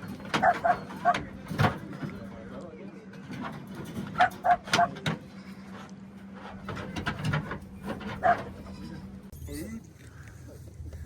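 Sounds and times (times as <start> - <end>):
low steady hum: 0.0 - 11.0
dog barking: 0.4 - 1.3, 8.2 - 8.5.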